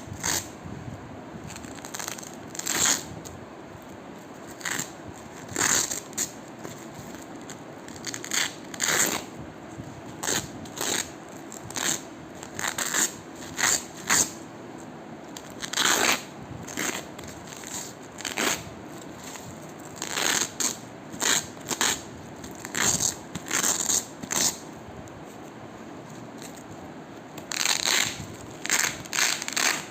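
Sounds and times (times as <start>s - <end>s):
velcro strips tearing apart: 0.1s - 0.5s, 1.5s - 3.1s, 4.5s - 9.3s, 10.2s - 14.4s, 15.4s - 24.6s, 26.4s - 26.6s, 27.4s - 29.9s.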